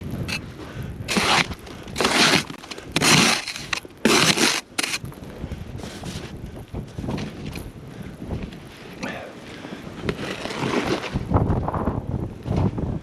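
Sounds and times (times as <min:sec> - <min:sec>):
footsteps crunching in snow: 0:01.1 - 0:06.4.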